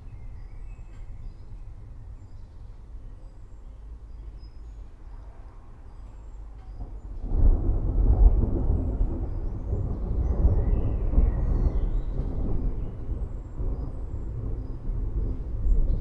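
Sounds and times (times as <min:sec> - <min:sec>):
rolling thunder: 0:06.8 - 0:16.0.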